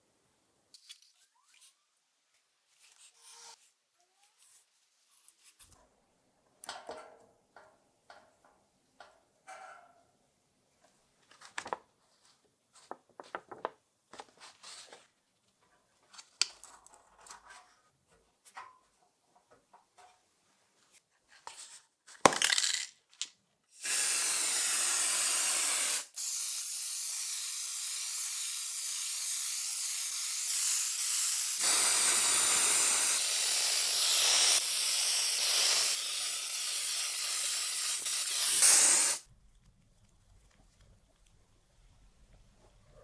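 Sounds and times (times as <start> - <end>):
pressurised spray hissing: 23.8 - 39.2.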